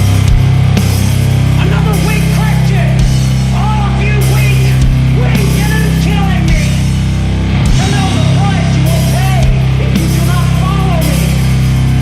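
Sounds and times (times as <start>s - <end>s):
distorted guitar and bass drone: 0.0s - 12.0s
deep drum hits: 7.5s - 10.1s.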